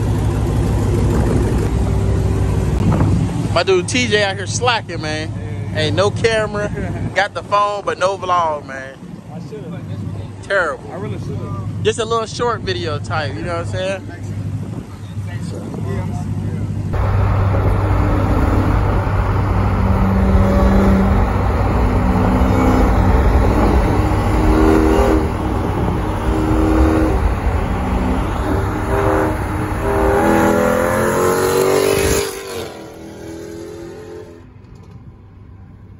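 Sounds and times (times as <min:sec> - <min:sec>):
steady low rumble: 0:16.8 - 0:30.8
car engine revving: 0:16.9 - 0:34.4.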